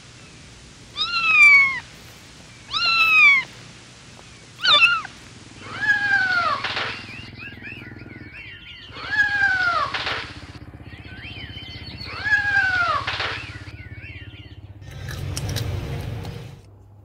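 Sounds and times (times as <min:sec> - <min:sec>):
steady low hum: 0:00.0 - 0:17.0
kitten meowing: 0:00.9 - 0:01.8, 0:02.7 - 0:03.5, 0:04.6 - 0:05.1.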